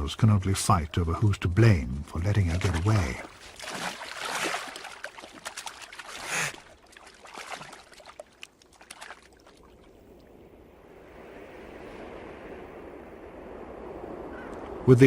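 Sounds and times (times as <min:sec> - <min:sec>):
water dripping: 0:02.0 - 0:10.4
otters fighting in water: 0:02.1 - 0:10.0.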